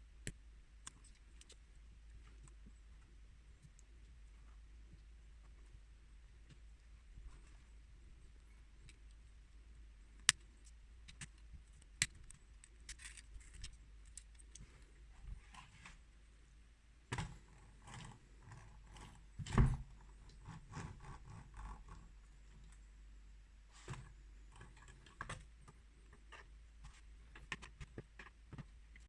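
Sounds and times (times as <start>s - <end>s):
plastic bricks clicking and rattling: 12.0s - 14.6s.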